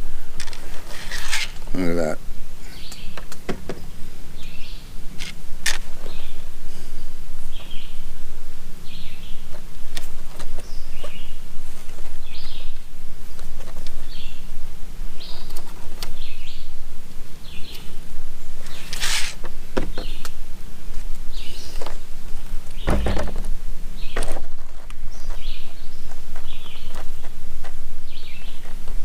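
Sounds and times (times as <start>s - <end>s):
rustle: 0.0s - 29.0s
steady low hum: 0.0s - 29.0s
small bird chirping: 2.7s - 3.3s, 7.4s - 8.1s, 8.8s - 9.6s, 10.4s - 11.4s, 12.2s - 12.8s, 15.1s - 18.0s, 22.7s - 27.4s, 28.0s - 28.8s.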